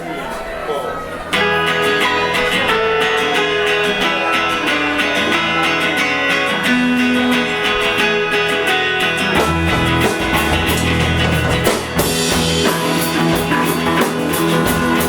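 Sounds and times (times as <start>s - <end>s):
live band guitar playing: 1.3s - 15.0s.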